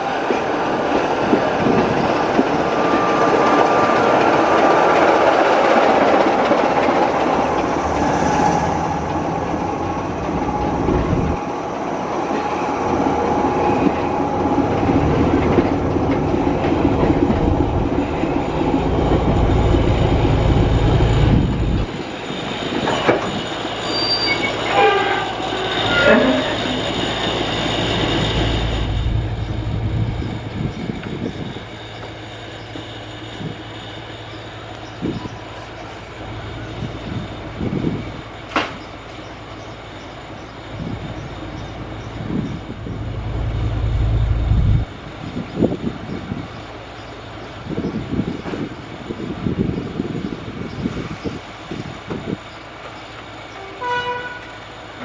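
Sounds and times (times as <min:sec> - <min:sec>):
clickety-clack over rail joints: 0:00.0 - 0:55.0
train wheels rumbling on rails: 0:00.0 - 0:55.0
deep rumble: 0:07.0 - 0:11.4, 0:14.6 - 0:21.9, 0:28.0 - 0:31.6, 0:41.2 - 0:44.9.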